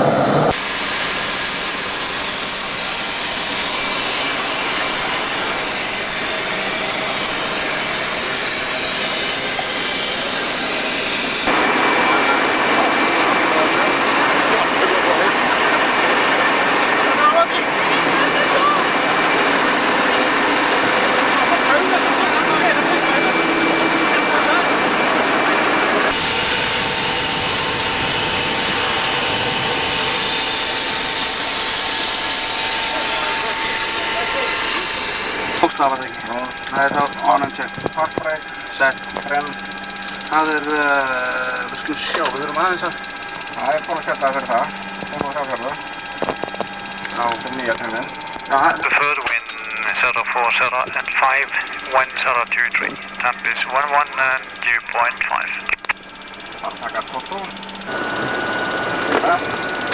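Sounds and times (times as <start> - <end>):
air noise: 0.0 - 14.6, 57.1 - 59.9
jet engine roar: 0.0 - 42.9, 45.5 - 56.0, 56.6 - 59.9
thin high whine: 0.0 - 59.9.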